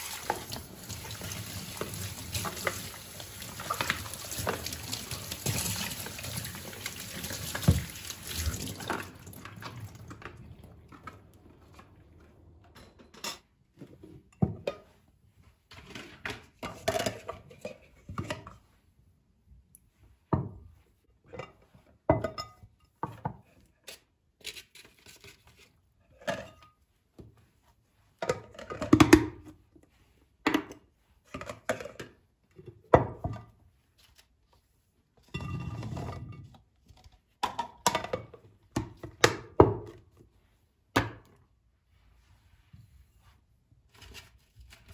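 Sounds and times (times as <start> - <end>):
tap running into a sink: 0.0 - 10.4
dishes clinking and knocking: 12.6 - 13.5.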